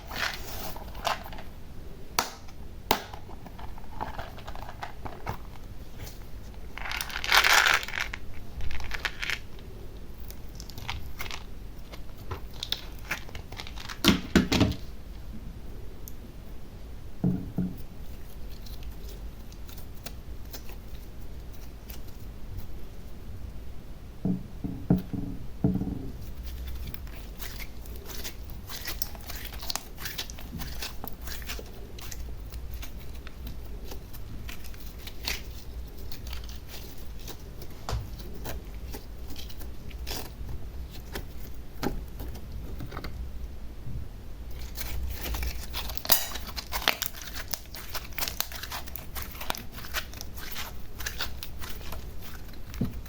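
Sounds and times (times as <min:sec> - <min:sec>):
slime crackling and crinkling: 0:00.0 - 0:01.5, 0:03.0 - 0:15.0, 0:17.8 - 0:23.0, 0:26.1 - 0:43.0, 0:44.5 - 0:53.0.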